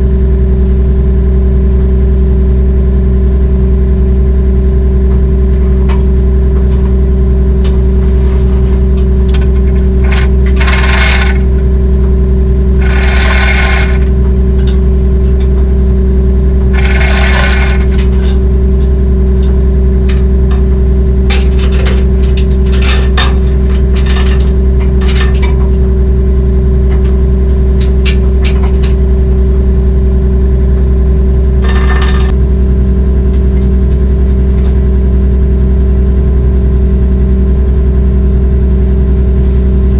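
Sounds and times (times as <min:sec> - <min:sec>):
heavy diesel engine running: 0:00.0 - 0:39.9
sharp clicks and rattles: 0:05.1 - 0:35.4
loud bursts of noise: 0:09.6 - 0:11.8, 0:12.8 - 0:15.1, 0:16.6 - 0:18.4.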